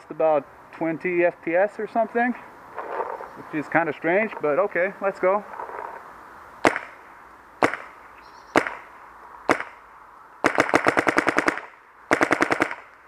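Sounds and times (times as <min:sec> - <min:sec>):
paintball marker firing: 0:06.6 - 0:07.0, 0:07.6 - 0:08.0, 0:08.6 - 0:08.9, 0:09.5 - 0:09.8, 0:10.4 - 0:12.9.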